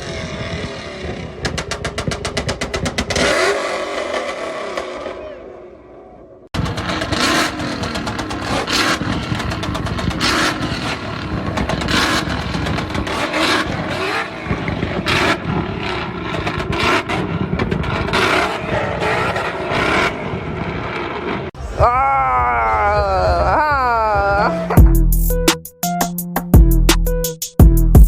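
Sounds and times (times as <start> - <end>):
car engine revving: 0.0 - 21.6.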